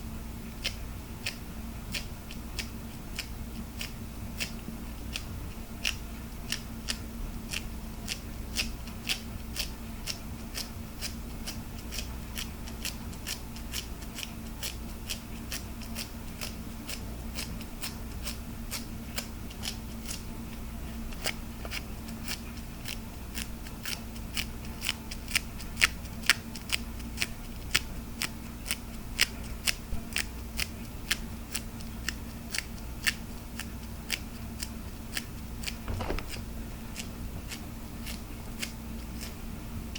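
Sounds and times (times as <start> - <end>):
low electrical hum: 0.0 - 39.9
hard plastic tapping clicks: 35.9 - 36.5.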